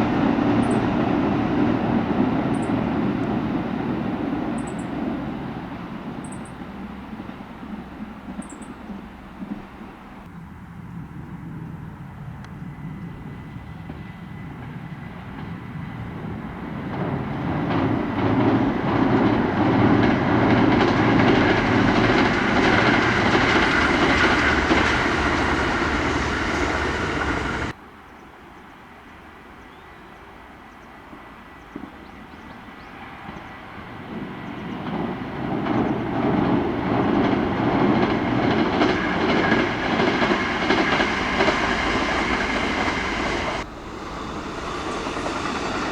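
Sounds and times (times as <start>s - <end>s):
electric train passing: 0.0s - 27.8s, 32.6s - 45.9s
wheels clicking over rail joints: 16.8s - 27.8s, 34.8s - 45.9s.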